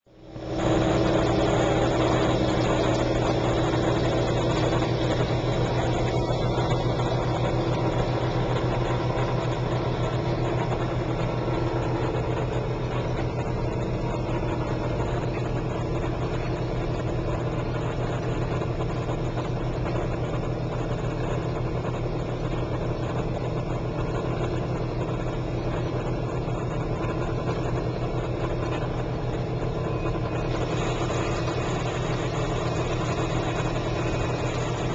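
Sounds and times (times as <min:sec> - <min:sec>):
dishwasher motor hum: 0:00.1 - 0:34.9.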